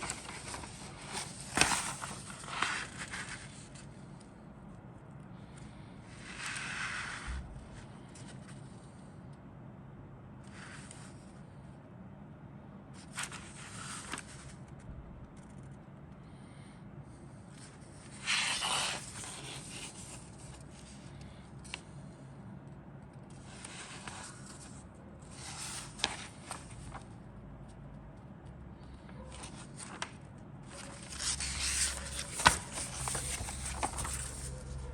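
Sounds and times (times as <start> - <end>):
low steady hum: 7.3 - 34.9
plastic rustling and crinkling: 29.4 - 34.9.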